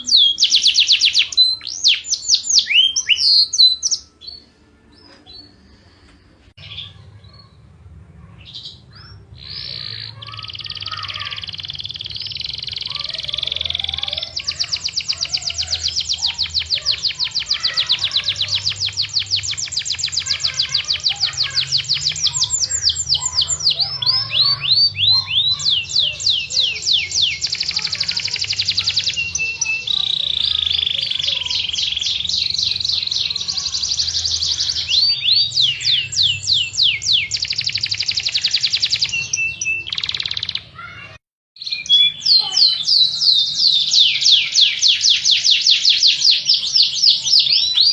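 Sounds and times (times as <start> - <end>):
canary singing trills: 0.0 - 6.0, 6.6 - 47.9.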